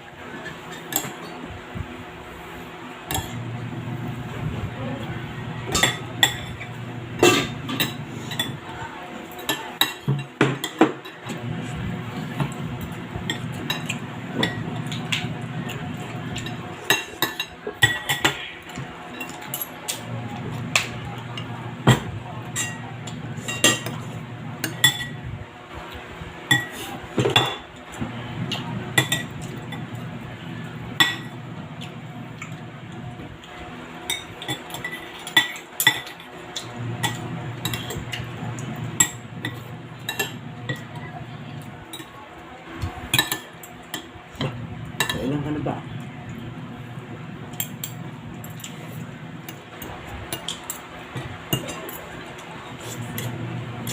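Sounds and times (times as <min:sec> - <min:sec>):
cutlery clinking on plates: 0:05.7 - 0:08.6.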